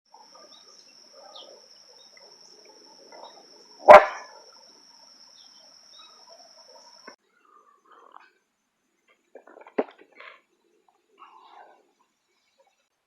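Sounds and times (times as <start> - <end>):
dog barking: 3.1 - 4.4.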